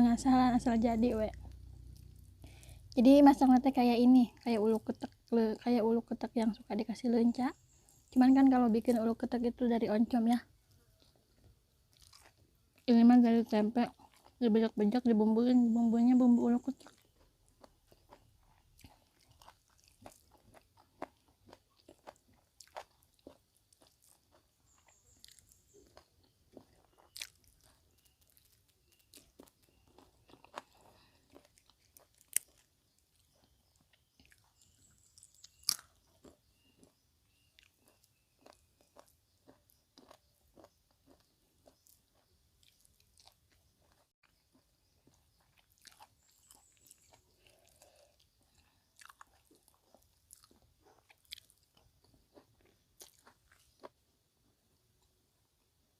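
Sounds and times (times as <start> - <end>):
person chewing crisp food: 10.6 - 12.9, 13.9 - 14.4, 16.6 - 55.7.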